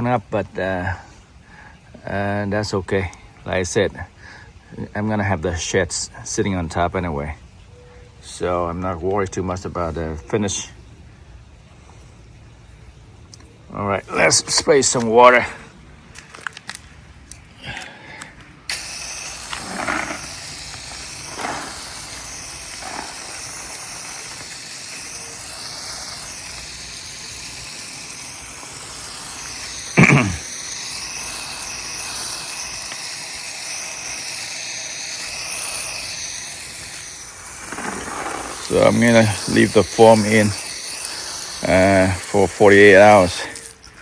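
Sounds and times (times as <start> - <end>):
hose nozzle spray hissing: 10.5 - 16.6, 17.2 - 44.0.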